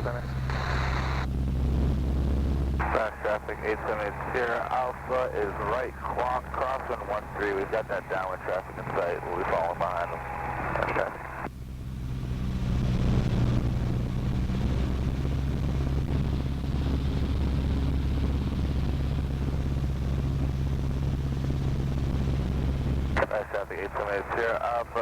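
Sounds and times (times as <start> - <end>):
airplane engine droning in flight: 0.0 - 25.0.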